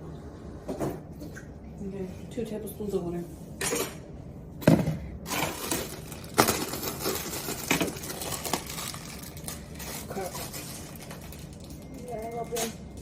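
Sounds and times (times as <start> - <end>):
utensils clinking against dishes: 3.6 - 4.0, 9.9 - 13.0.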